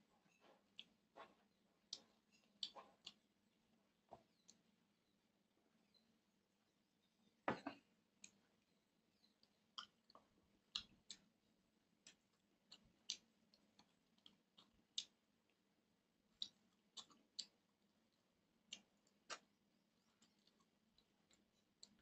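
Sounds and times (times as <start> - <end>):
wet chewing and lip smacks: 0.3 - 3.4, 9.4 - 11.3, 12.0 - 15.6, 16.3 - 17.8, 18.6 - 22.0.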